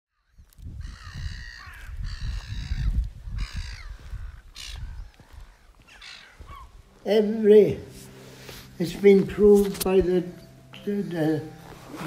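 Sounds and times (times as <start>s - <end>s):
harsh cawing bird calls: 0.1s - 6.8s.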